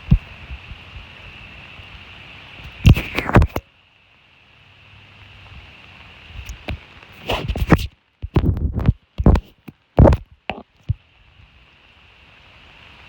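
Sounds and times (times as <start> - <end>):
thumps and rustles on microphone: 0.0 - 1.1, 6.4 - 11.0
light rain hissing: 0.0 - 13.0.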